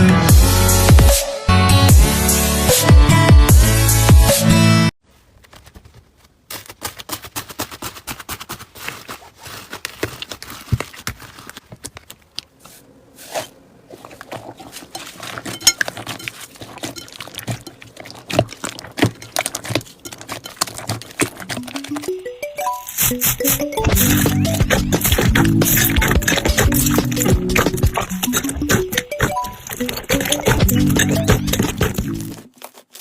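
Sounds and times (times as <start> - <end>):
slime squishing with crackles: 6.6 - 33.0
electronic music: 21.4 - 32.4.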